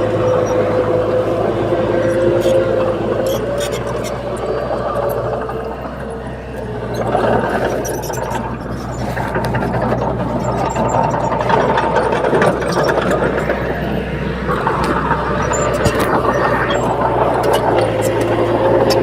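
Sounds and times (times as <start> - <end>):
diesel engine humming: 0.0 - 19.0
scattered clicks and knocks: 2.0 - 19.0.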